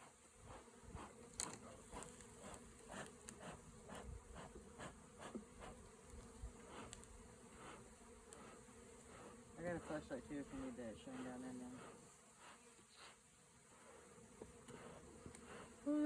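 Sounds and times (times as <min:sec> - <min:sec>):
bee buzzing past close: 0:00.0 - 0:16.0
bees buzzing: 0:00.0 - 0:16.0.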